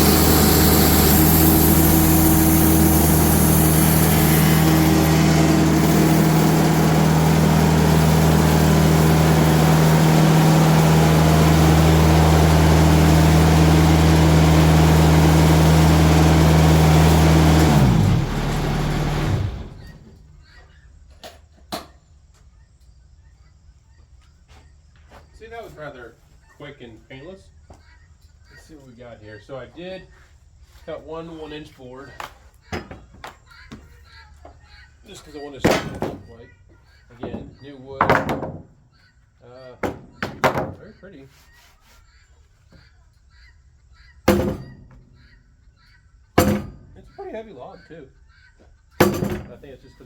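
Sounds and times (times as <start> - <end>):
diesel engine running: 0.0 - 20.4.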